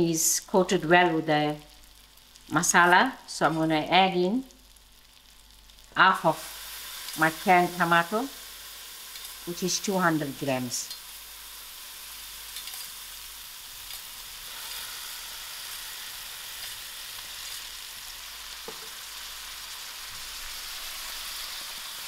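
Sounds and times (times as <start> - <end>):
chicken sizzling in a pan: 4.5 - 22.0.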